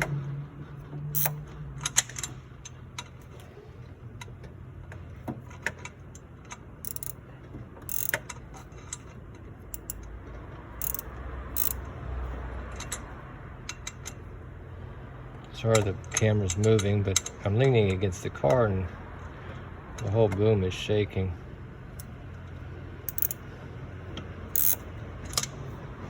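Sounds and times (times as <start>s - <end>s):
ratchet clicks: 1.2s - 2.3s, 6.5s - 7.2s, 7.8s - 9.1s, 9.7s - 10.1s, 10.8s - 11.9s, 23.1s - 23.4s, 24.6s - 25.5s
metal clinks: 6.9s - 7.2s, 9.8s - 10.0s, 10.8s - 11.8s, 23.1s - 23.4s, 24.6s - 24.8s.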